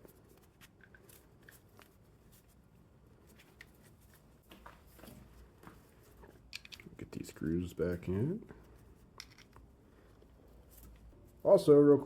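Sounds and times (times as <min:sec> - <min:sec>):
small parts clicking: 0:06.5 - 0:07.1, 0:09.1 - 0:09.7.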